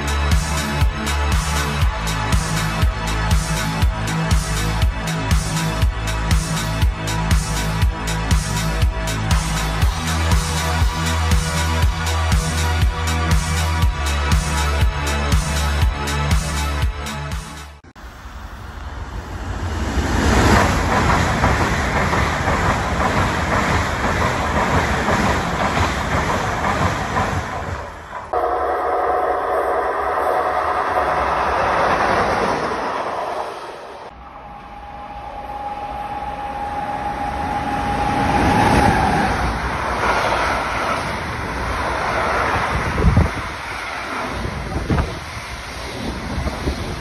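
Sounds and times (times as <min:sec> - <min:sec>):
train rushing past: 0:00.0 - 0:47.0
steady tone: 0:28.1 - 0:44.6.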